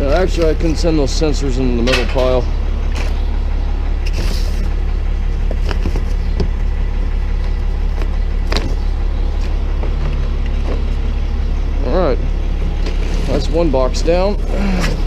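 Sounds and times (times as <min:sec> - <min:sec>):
truck engine idling: 0:00.0 - 0:15.0
knocks and clinks of parts: 0:01.8 - 0:03.2.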